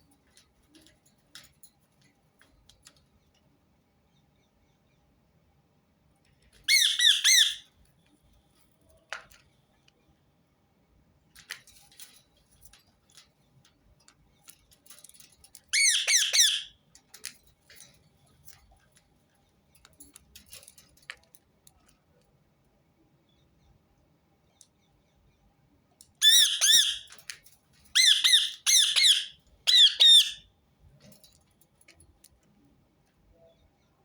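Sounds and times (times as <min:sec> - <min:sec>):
parakeet harsh trilled screeches: 0:06.7 - 0:07.6, 0:15.8 - 0:16.7, 0:26.2 - 0:27.1, 0:27.9 - 0:30.4.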